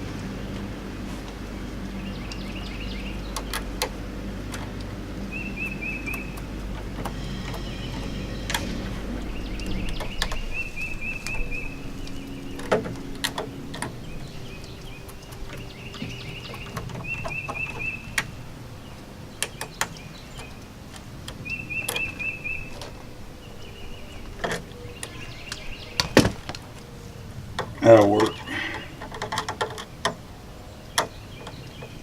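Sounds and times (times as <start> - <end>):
bird chirping high notes: 5.2 - 26.2
clicks and knocks handling wires: 11.2 - 18.3, 27.6 - 30.2.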